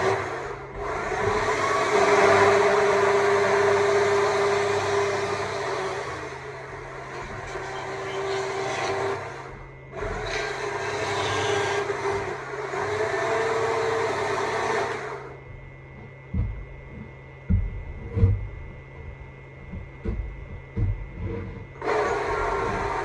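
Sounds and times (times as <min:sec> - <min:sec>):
low thumps: 0:15.5 - 0:21.6
chainsaw cutting wood: 0:21.8 - 0:23.0.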